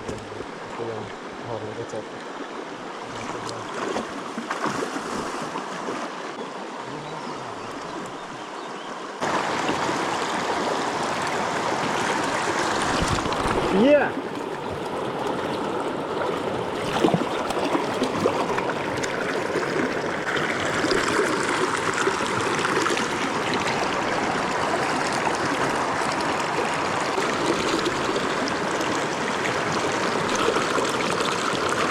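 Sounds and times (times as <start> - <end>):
water rushing over rocks: 9.0 - 31.9.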